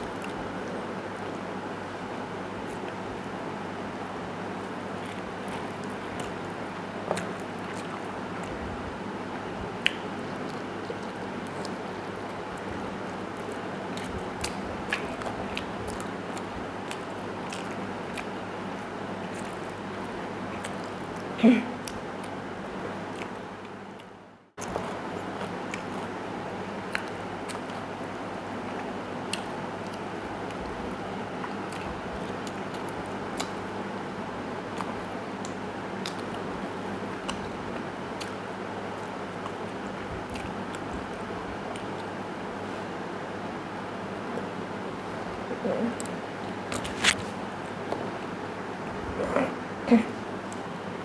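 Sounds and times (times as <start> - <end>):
chewing clicks and smacks: 9.8 - 11.8, 12.6 - 18.4, 23.1 - 26.1, 26.8 - 27.9, 28.7 - 33.7, 34.7 - 36.5, 37.1 - 42.2
person chewing food: 34.7 - 43.0.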